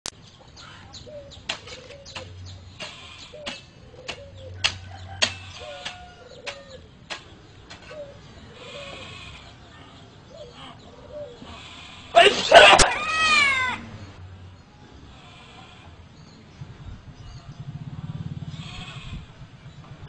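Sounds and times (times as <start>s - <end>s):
animal calls: 0.6s - 6.9s, 7.8s - 13.9s, 18.5s - 19.3s
hoe striking dry ground: 1.4s - 8.1s.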